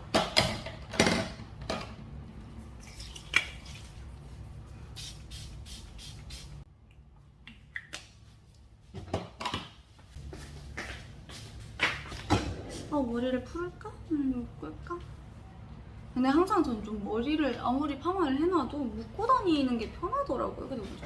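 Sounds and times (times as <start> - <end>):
low steady hum: 10.1 - 21.0.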